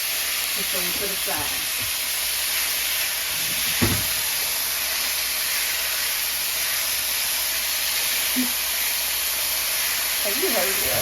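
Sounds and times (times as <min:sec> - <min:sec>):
meat sizzling in a pan: 0:00.0 - 0:11.0
knock: 0:03.5 - 0:04.2.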